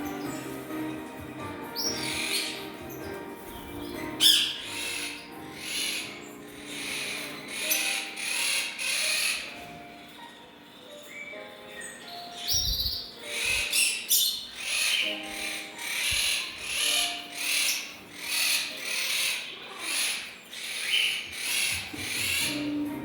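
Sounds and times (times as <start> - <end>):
birds chirping harshly: 0.0 - 23.0.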